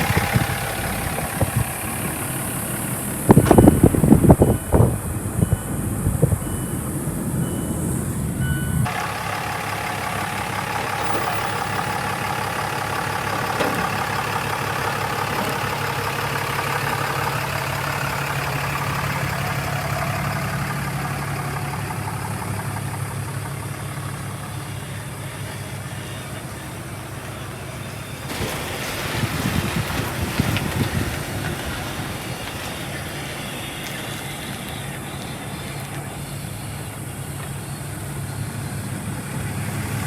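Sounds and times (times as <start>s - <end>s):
reversing alarm beeping: 0.0s - 28.6s
vehicle engine running: 0.0s - 40.0s.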